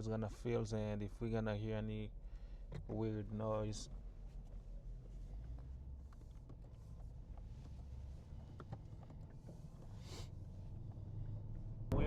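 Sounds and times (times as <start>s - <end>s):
car cabin rumble: 2.6s - 12.0s.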